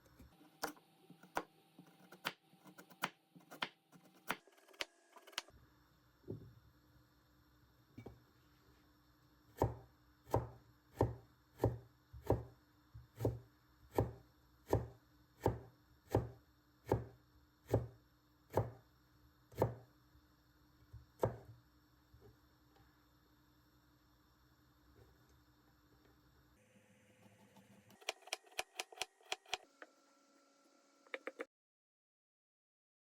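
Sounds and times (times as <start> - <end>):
knife chopping on cutting board: 9.6 - 12.5, 13.2 - 16.3, 16.9 - 17.1, 18.5 - 18.8, 19.6 - 19.8.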